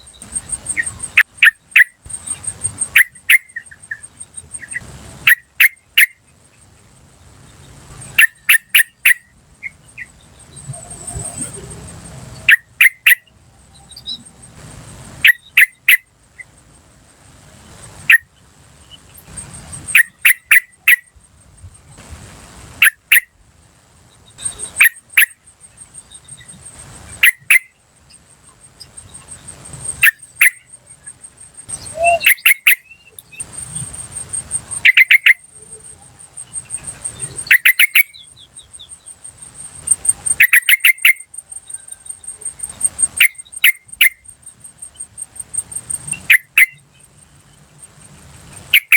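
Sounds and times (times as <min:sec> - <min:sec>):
bird calling sharp notes: 0:00.0 - 0:06.2, 0:07.9 - 0:13.3, 0:15.2 - 0:16.5, 0:18.0 - 0:21.1, 0:22.8 - 0:23.3, 0:24.4 - 0:44.3, 0:44.9 - 0:46.8, 0:48.6 - 0:48.9
high-pitched insect trill: 0:00.0 - 0:48.9.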